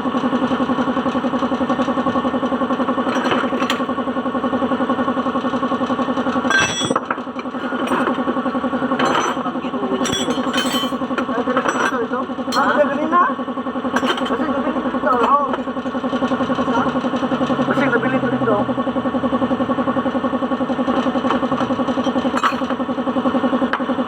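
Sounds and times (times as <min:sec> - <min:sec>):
metallic clinks of tools: 0:06.5 - 0:07.0, 0:10.0 - 0:11.0.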